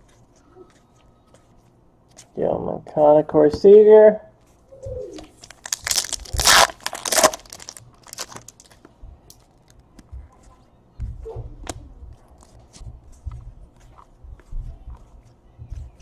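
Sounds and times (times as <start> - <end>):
foil wrapper tearing and crinkling: 5.4 - 8.7
cards clicking and rustling: 5.4 - 8.8.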